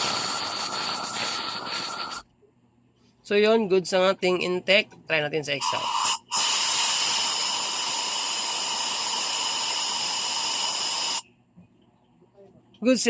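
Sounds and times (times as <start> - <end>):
compressed air hissing: 0.0 - 2.2, 5.6 - 11.3.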